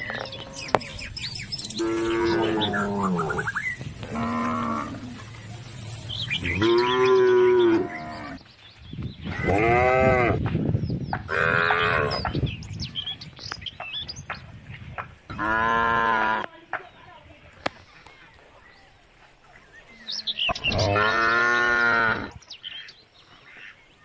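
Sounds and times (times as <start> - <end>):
cattle mooing: 1.8 - 5.3, 6.4 - 8.4.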